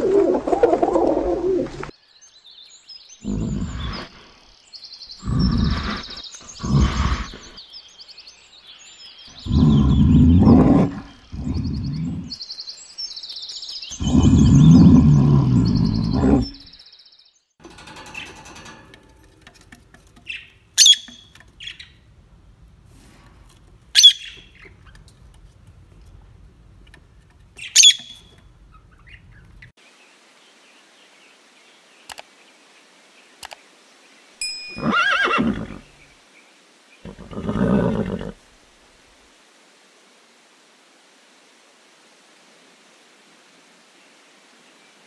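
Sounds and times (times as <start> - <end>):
bear growling: 3.2 - 4.1, 5.2 - 7.6, 9.4 - 12.4, 13.9 - 16.7
lovebirds squawking: 20.3 - 21.9, 24.0 - 25.0, 27.6 - 29.6
horse whinnying: 34.8 - 35.8, 37.1 - 38.4.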